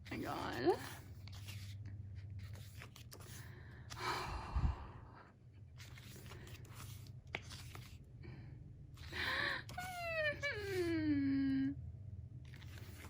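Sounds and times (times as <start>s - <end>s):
paper pages rustling: 0.1s - 4.0s, 5.7s - 8.1s, 12.4s - 13.0s.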